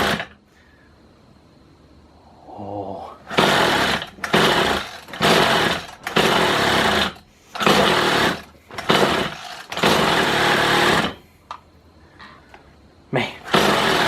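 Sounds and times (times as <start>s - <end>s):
hedge trimmer engine surging: 0.0s - 0.4s, 3.3s - 11.2s, 13.4s - 14.0s.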